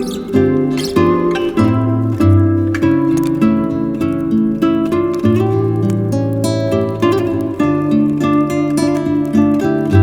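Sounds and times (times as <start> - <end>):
acoustic guitar carol: 0.0 - 10.0.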